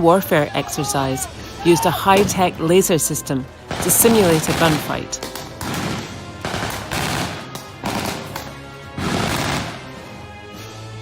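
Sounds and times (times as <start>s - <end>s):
background music: 0.0s - 11.0s
gunfire bursts: 3.7s - 10.1s.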